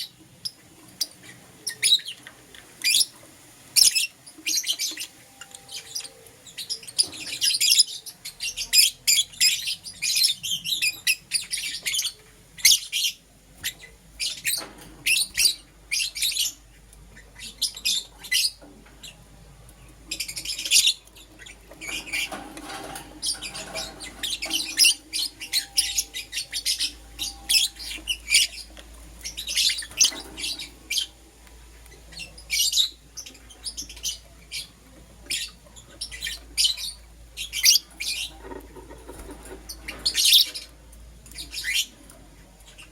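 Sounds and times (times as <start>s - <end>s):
lovebirds chirping: 0.0s - 42.9s.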